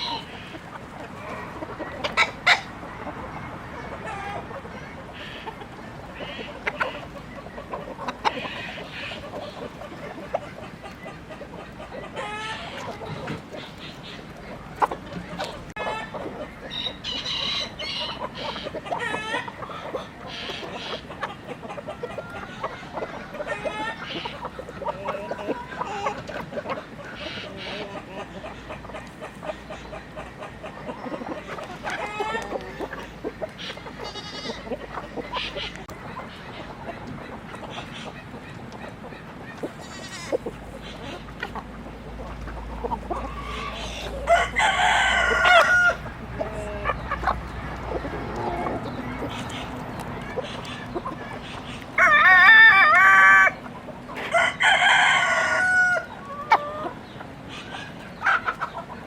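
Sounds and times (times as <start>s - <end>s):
chickens clucking: 0.0s - 59.0s
rooster crowing: 43.5s - 46.2s, 54.2s - 56.1s.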